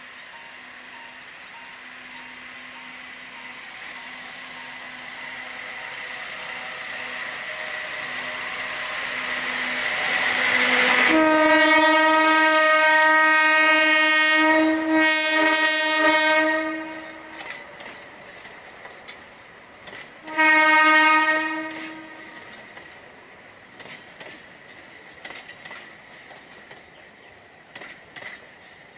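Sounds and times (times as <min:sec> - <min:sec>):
train running noise: 0:00.0 - 0:28.9
long train horn blast: 0:05.4 - 0:17.8, 0:20.2 - 0:22.6.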